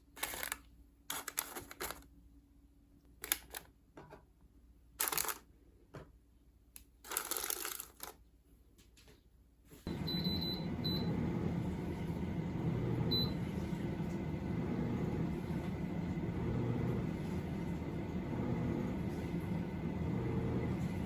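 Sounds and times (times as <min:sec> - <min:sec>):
steady low hum: 0:09.9 - 0:21.0.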